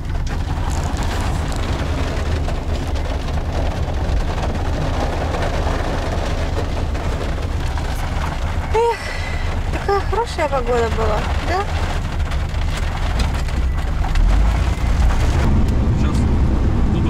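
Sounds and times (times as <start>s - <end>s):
continuous low rumble: 0.0s - 17.0s
heavy rain pouring: 0.0s - 17.0s.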